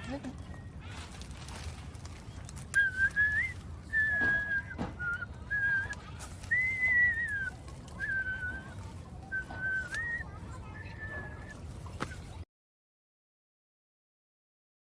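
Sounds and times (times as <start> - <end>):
person whistling a slow tune: 2.7 - 8.7, 9.3 - 10.2.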